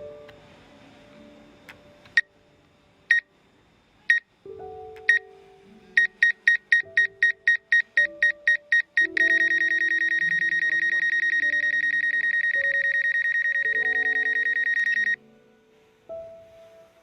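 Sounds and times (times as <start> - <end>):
soft music: 0.0 - 17.0
remote controller warning beeps: 6.0 - 15.2.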